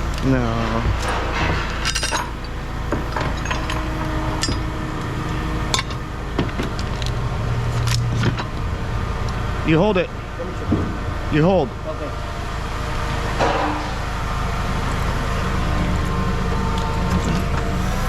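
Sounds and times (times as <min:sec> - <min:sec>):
scrap metal clanking: 0:00.0 - 0:06.1
steady low hum: 0:00.0 - 0:18.0.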